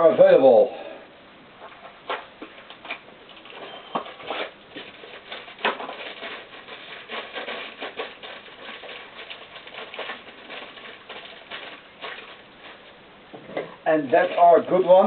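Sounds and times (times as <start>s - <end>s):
packaging crinkling and rustling: 1.7s - 13.1s, 14.0s - 15.0s.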